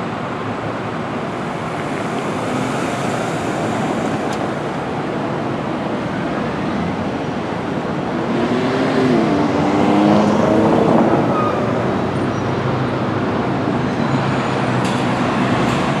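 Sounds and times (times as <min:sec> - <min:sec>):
street traffic: 0:00.0 - 0:16.0
heavy vehicle engine passing: 0:00.4 - 0:07.0.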